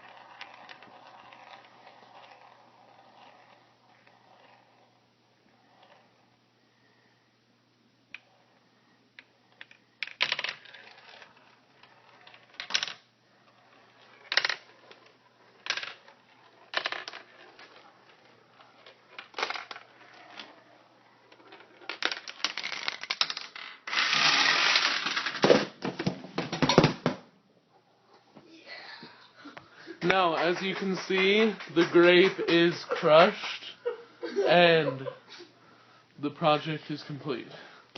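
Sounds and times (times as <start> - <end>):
small objects clicking and knocking: 21.3 - 25.6
pieces clattering: 21.8 - 27.0.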